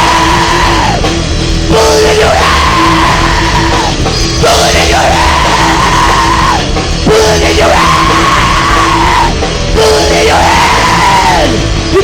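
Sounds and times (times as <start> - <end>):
live rock band playing: 0.0 - 12.0
person yelling: 1.8 - 6.7.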